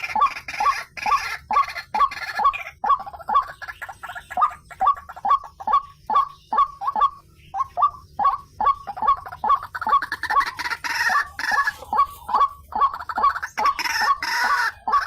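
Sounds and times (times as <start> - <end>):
waterhen calling: 0.0 - 15.0.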